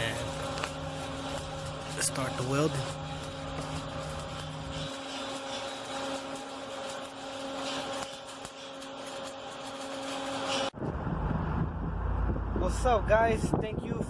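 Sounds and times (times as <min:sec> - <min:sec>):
welding arc crackling and sizzling: 0:00.0 - 0:10.8
steady hum: 0:00.0 - 0:13.2
low rumble: 0:10.7 - 0:14.0
wind noise on microphone: 0:10.7 - 0:14.0.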